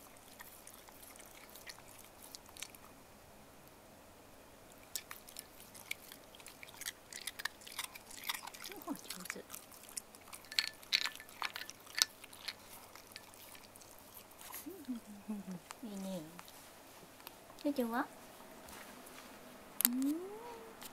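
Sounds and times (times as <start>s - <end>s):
dog crunching ice cubes: 4.8s - 14.6s.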